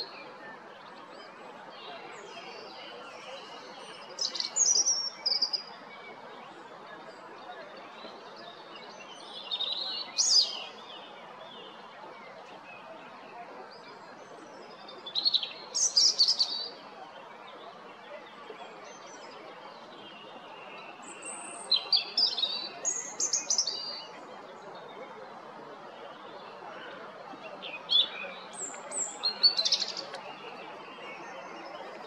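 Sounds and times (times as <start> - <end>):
robin singing: 21.0 - 24.1, 27.6 - 31.8.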